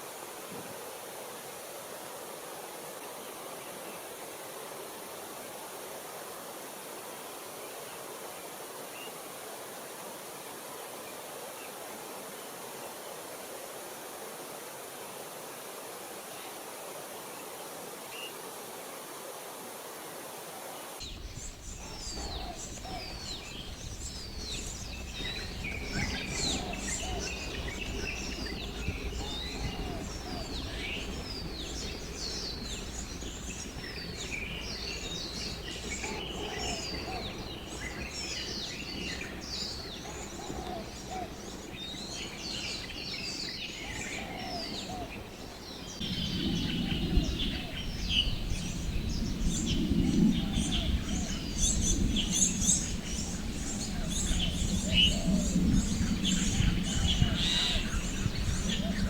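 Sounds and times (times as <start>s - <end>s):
birds chirping and whistling: 21.1s - 59.0s.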